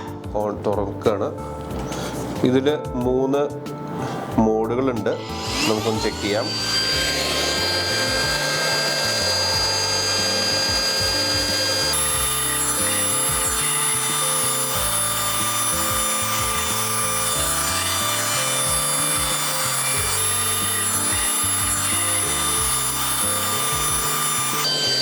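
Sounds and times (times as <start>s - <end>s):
handheld vacuum cleaner whine: 5.1s - 25.0s.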